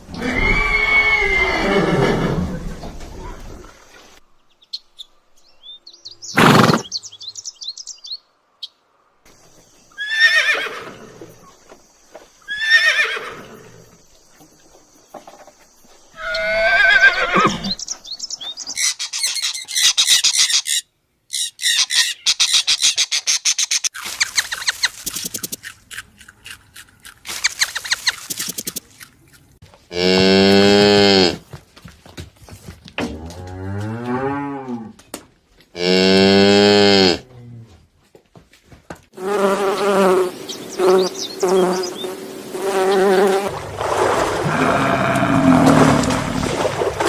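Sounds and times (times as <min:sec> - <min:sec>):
horse whinnies: 0:00.1 - 0:02.8, 0:10.0 - 0:11.2, 0:12.5 - 0:13.8, 0:16.2 - 0:17.8, 0:44.4 - 0:46.4.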